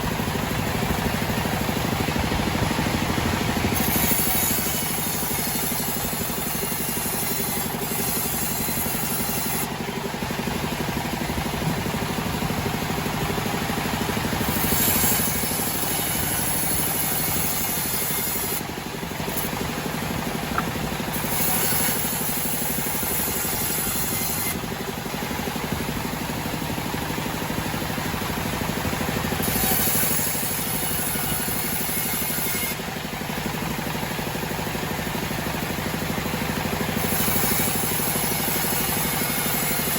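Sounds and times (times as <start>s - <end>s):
band sawmill running: 0.0s - 39.9s
high hiss of sawing: 3.7s - 9.7s, 14.4s - 18.7s, 21.0s - 24.6s.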